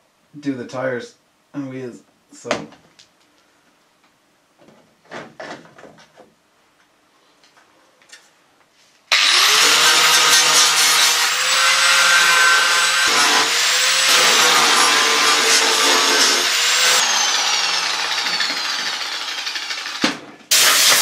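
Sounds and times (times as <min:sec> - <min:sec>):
electric power tool spinning: 0:09.1 - 0:21.0.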